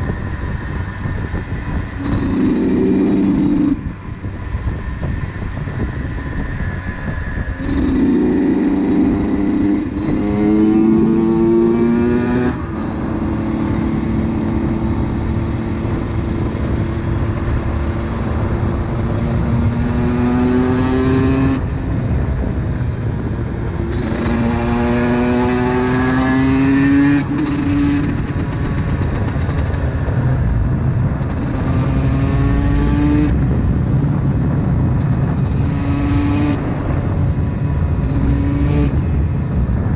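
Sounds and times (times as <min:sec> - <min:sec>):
two-stroke motorcycle engine revving: 0:01.8 - 0:03.9, 0:07.6 - 0:22.0, 0:23.8 - 0:30.4, 0:31.0 - 0:39.4.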